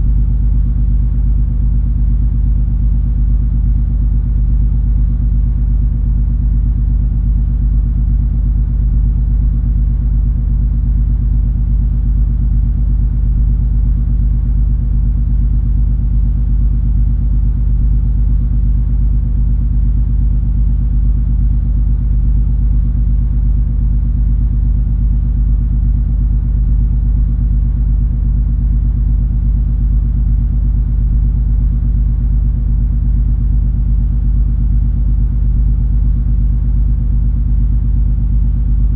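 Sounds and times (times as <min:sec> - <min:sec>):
ferry engine rumble and drone: 0:00.0 - 0:01.0.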